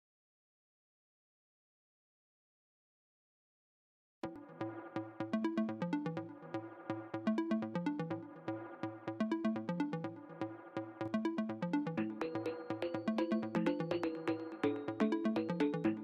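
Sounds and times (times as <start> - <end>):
electronic music with steady beat: 4.2 - 16.0.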